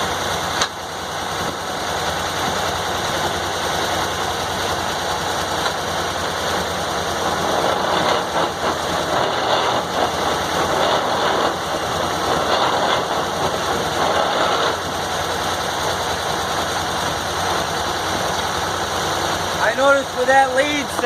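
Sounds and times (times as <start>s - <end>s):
sawmill engine running: 0.0s - 21.0s
circular saw cutting log: 7.0s - 17.2s.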